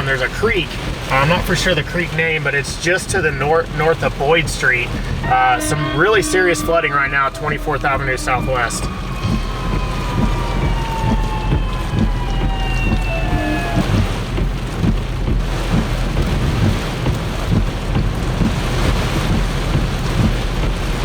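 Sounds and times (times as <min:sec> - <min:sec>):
torrential rain pouring: 0:00.0 - 0:21.0
wind gusts buffeting microphone: 0:00.0 - 0:21.0
faint falling whine: 0:05.0 - 0:14.1.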